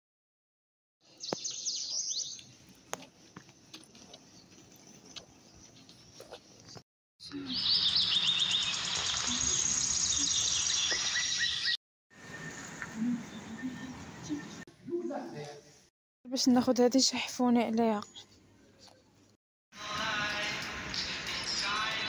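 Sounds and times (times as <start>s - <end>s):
small birds chirping: 1.0s - 11.8s.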